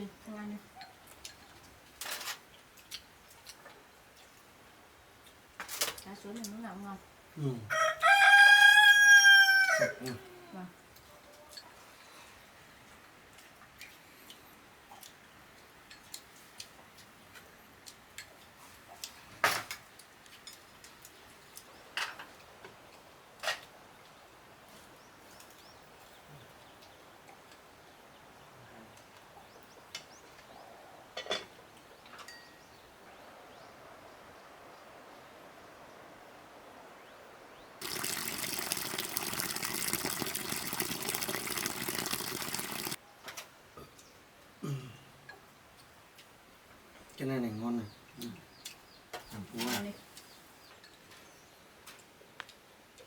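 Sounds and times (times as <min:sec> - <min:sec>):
water splashing and gushing: 0:37.8 - 0:43.0.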